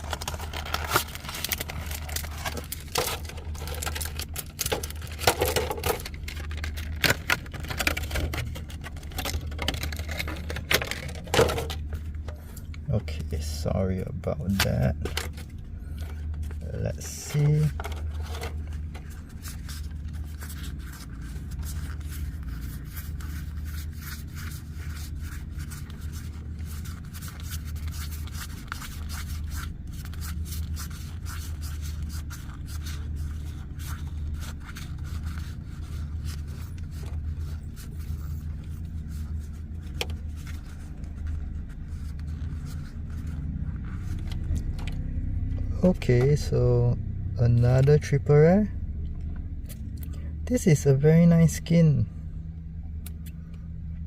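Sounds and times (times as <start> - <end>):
cards and packaging handled: 0.0 - 46.5
steady low hum: 0.0 - 54.0.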